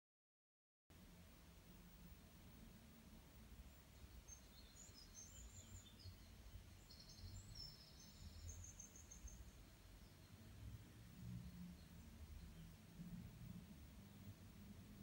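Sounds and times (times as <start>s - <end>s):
faint low hum: 0.9s - 15.0s
faint high bird chirps: 3.7s - 12.8s.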